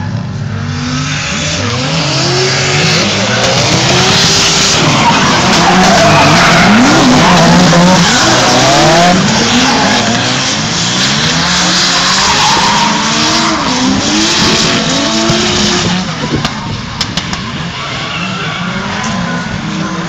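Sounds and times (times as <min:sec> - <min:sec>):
car engines revving: 0:00.0 - 0:20.0
tyres screeching: 0:02.4 - 0:14.2.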